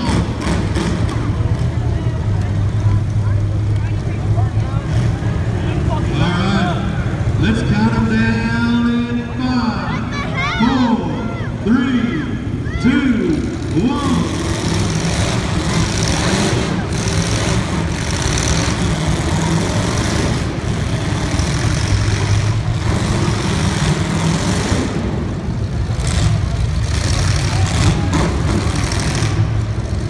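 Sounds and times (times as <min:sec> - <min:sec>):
race car engines idling: 0:00.0 - 0:30.0.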